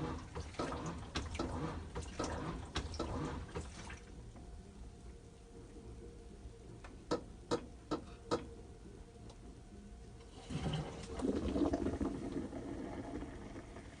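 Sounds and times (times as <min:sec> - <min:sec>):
water sloshing in washing machine: 0:00.0 - 0:04.2, 0:10.3 - 0:14.0.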